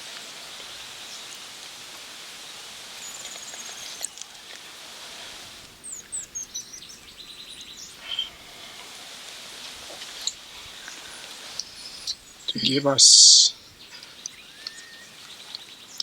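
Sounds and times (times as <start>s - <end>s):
birds chirping: 0.0s - 16.0s
high background hiss: 0.0s - 16.0s
bird trill: 5.8s - 8.7s, 10.2s - 16.0s.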